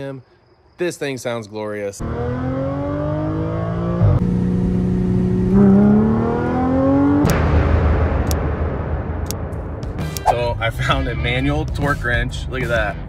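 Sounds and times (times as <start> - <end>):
car engine accelerating through gears: 2.0 - 7.4.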